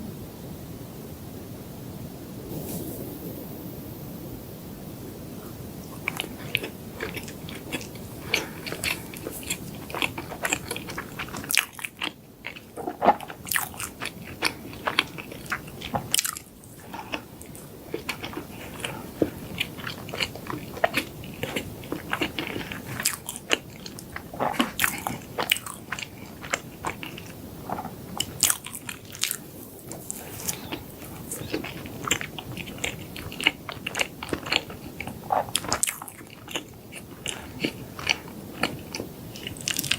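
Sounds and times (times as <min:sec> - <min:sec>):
person chewing crunchy food: 0:05.8 - 0:39.9
mouth sounds: 0:16.7 - 0:39.9.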